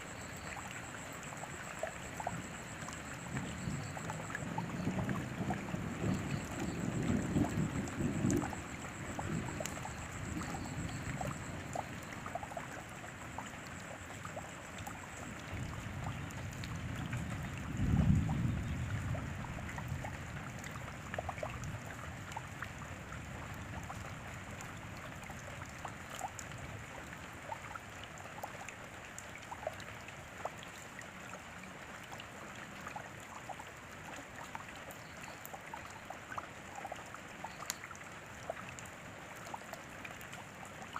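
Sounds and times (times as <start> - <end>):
raindrops ticking: 0.0 - 40.9
steady rain: 0.0 - 40.9.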